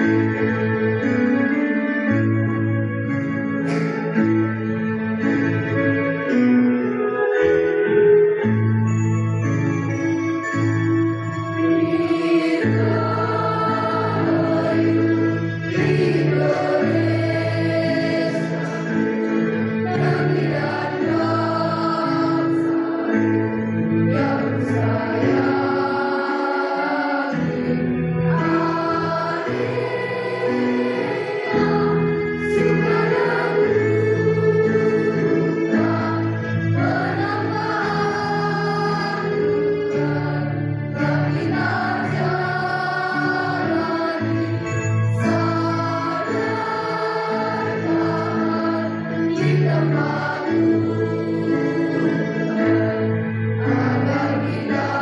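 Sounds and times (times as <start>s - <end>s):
choir singing in parts: 11.7s - 55.0s.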